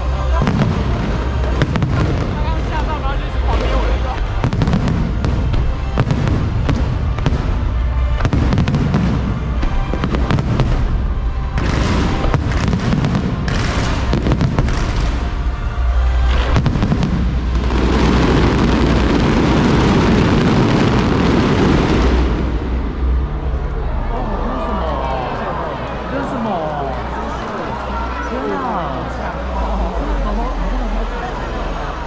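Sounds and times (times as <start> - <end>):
fireworks bangs and crackles: 0.0 - 23.8.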